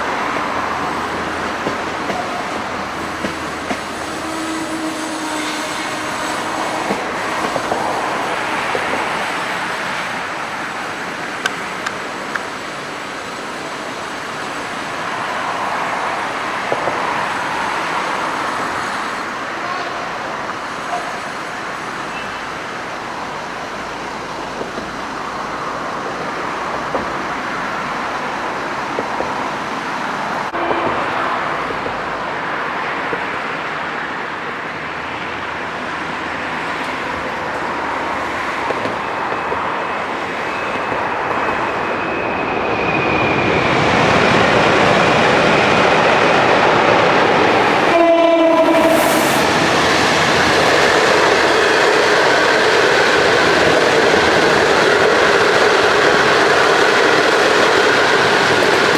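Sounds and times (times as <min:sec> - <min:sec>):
train rolling on track: 0:00.0 - 0:58.9
locomotive horn blast: 0:03.3 - 0:08.0, 0:30.5 - 0:31.4, 0:47.8 - 0:49.5.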